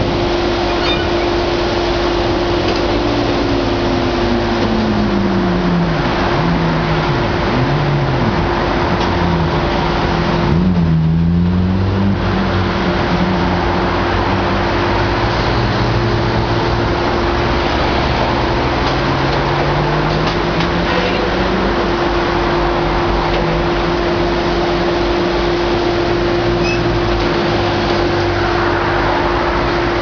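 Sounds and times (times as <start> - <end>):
hydraulic hum: 0.0 - 5.1
excavator diesel engine: 0.0 - 30.0.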